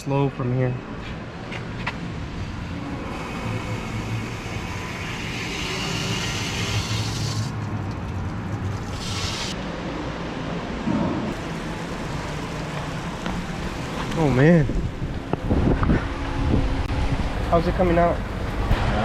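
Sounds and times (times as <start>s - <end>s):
water rushing through pipe: 3.1s - 9.6s
low hum: 9.6s - 19.0s.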